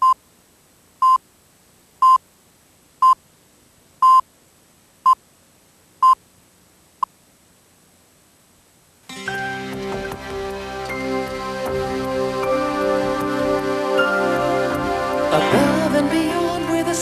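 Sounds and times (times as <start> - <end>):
faint tape hiss: 0.0 - 17.0
short electronic beeps: 4.0 - 4.2.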